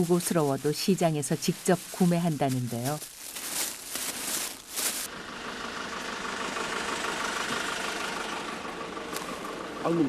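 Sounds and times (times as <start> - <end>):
handling noise: 0.0 - 5.1
vehicle engine idling: 0.0 - 10.0.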